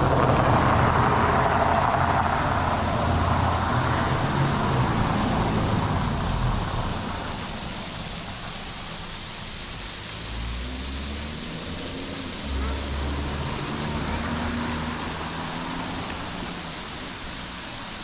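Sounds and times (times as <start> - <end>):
passing car engine hum: 0.0 - 18.0
waterfall rushing: 0.0 - 18.0.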